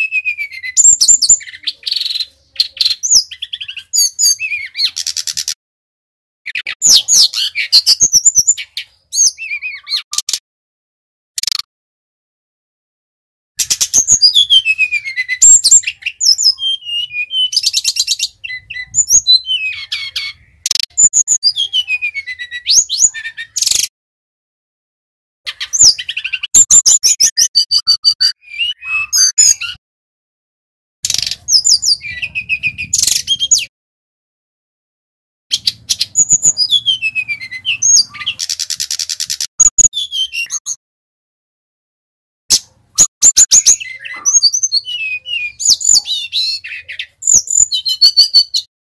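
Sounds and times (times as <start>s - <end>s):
bird singing chirps and whistles: 0.0s - 5.6s, 6.5s - 10.4s, 13.6s - 23.9s, 25.5s - 29.8s, 31.0s - 33.7s, 35.5s - 40.8s, 42.5s - 48.7s.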